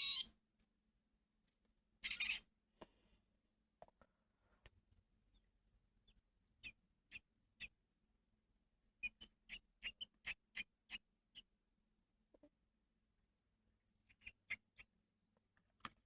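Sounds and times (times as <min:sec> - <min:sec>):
baby bird cheeping: 0:00.0 - 0:00.3, 0:02.0 - 0:02.4.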